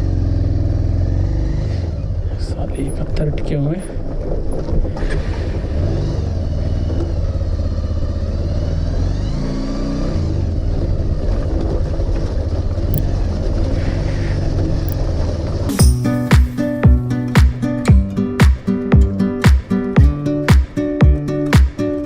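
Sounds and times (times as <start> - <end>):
motorcycle engine running: 0.0 - 2.5.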